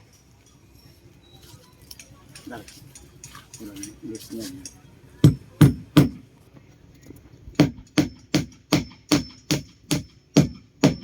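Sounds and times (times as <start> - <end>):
hammer strikes: 5.2 - 6.2, 7.6 - 11.0.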